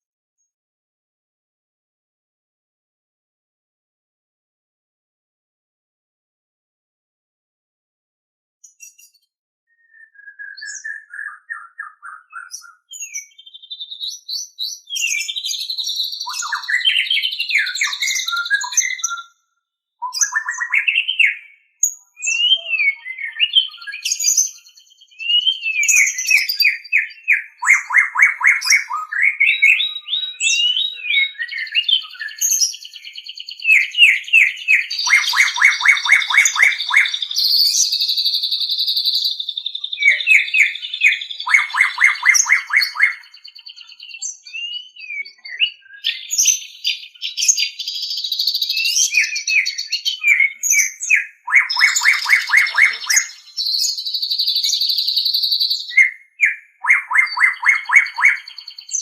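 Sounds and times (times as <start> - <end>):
bird singing varied song: 8.6 - 59.0.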